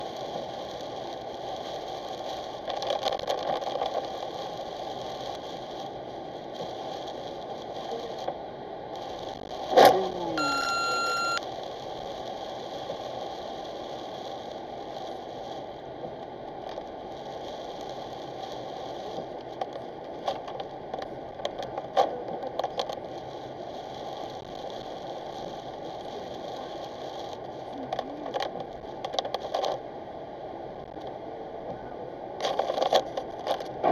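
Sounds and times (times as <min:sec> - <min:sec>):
tyre and rain noise: 0:00.0 - 0:29.9, 0:32.4 - 0:33.9
electronic beep: 0:10.4 - 0:11.4.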